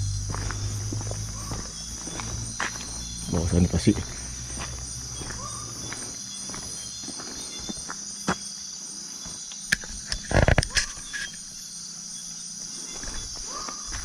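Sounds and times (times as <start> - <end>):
footsteps on the ground: 0.0 - 10.0, 12.6 - 14.0
insects chirring: 0.0 - 14.0.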